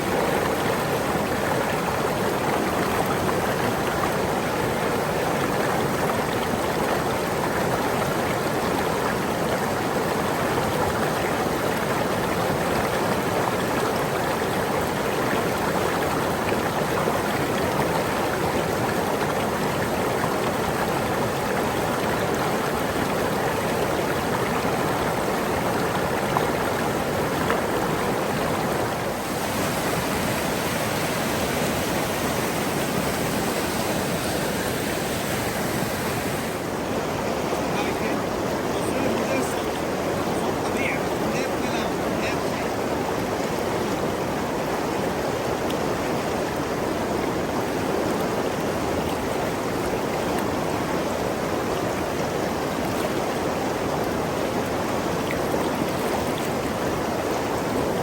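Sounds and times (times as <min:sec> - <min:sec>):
flowing water rushing: 0:00.0 - 0:58.0.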